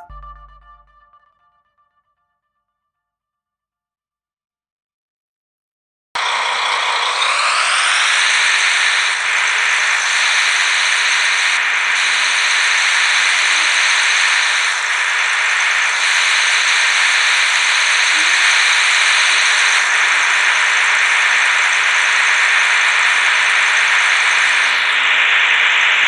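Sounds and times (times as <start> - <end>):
small electric motor whirring: 6.2 - 26.0.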